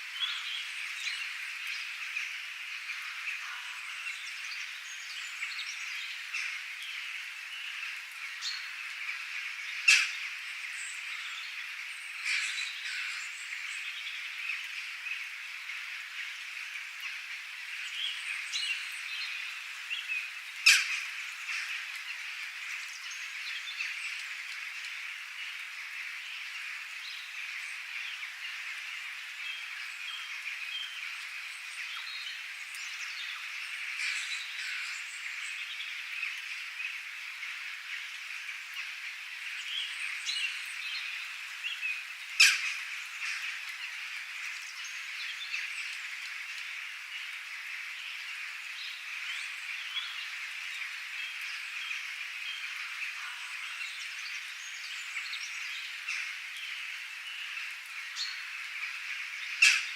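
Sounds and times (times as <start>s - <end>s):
birds chirping and calling: 17.8s - 24.5s, 39.5s - 46.6s, 48.9s - 59.9s.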